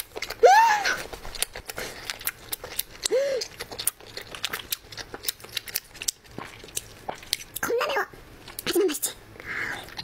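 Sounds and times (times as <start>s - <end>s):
chewing mouth clicks: 1.0s - 7.7s.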